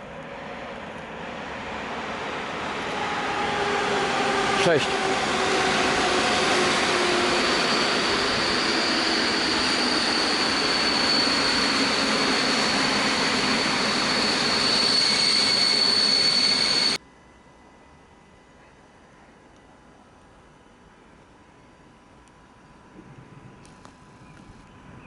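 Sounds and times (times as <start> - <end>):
high whine: 0.0 - 17.0
train wheels rushing on rails: 0.0 - 17.0.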